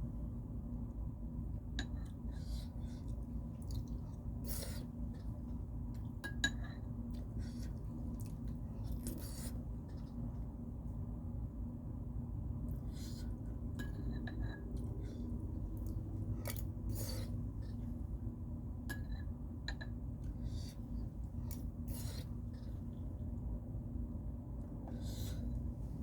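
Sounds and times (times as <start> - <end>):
steady low hum: 0.0 - 26.0
crunchy eating: 7.0 - 10.3, 12.7 - 18.0.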